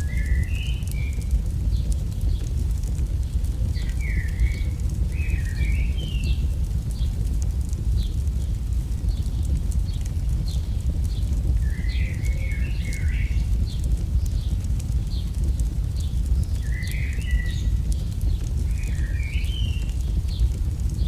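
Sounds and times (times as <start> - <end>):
bird chirping: 0.0 - 2.5, 3.8 - 6.4, 11.6 - 13.6, 16.4 - 20.5
bird warbling song: 0.0 - 2.5, 3.8 - 7.1, 9.9 - 15.3, 16.3 - 20.5
fire crackling and popping: 0.0 - 21.0
low rumble: 0.0 - 21.0.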